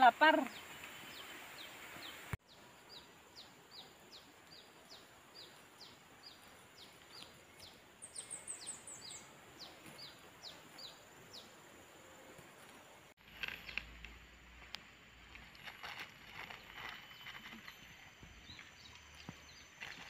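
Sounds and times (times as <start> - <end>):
bird chirping: 0.1 - 12.2, 16.4 - 20.0.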